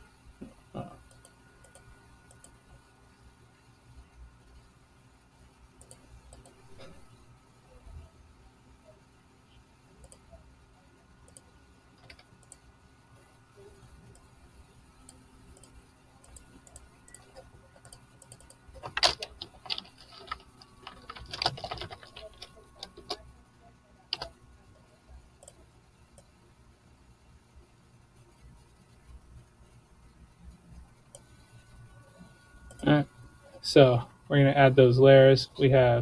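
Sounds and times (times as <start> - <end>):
faint steady hum: 0.0 - 36.0
computer mouse clicks: 1.0 - 2.6, 5.8 - 7.1, 10.0 - 10.3, 11.3 - 12.7, 15.0 - 23.3, 24.2 - 24.4, 25.4 - 25.6, 32.6 - 32.9
keyboard key presses: 16.3 - 23.2, 24.2 - 24.4.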